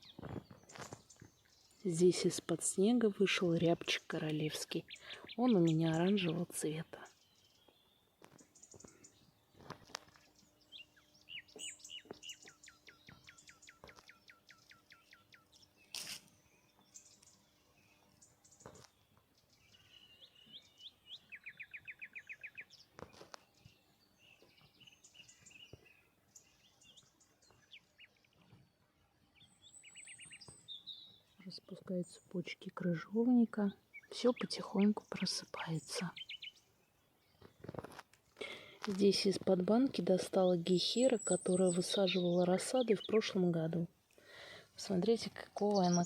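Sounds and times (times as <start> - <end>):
birds singing: 0.0 - 46.0
bird trill: 10.1 - 18.8, 19.5 - 28.3, 29.4 - 31.4.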